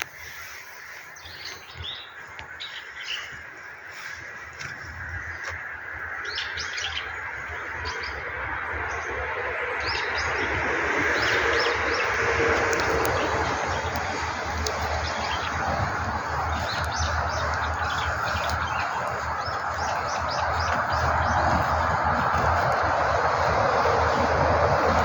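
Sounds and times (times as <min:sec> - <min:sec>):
small birds chirping: 0:00.0 - 0:25.0
steady rushing noise: 0:08.2 - 0:25.0.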